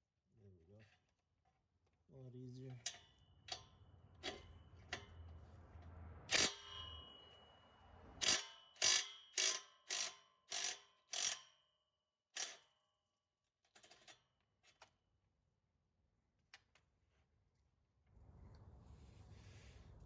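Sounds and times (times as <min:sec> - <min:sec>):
ratchet wrench clicking: 0:06.3 - 0:06.9, 0:08.2 - 0:11.6, 0:12.4 - 0:12.7.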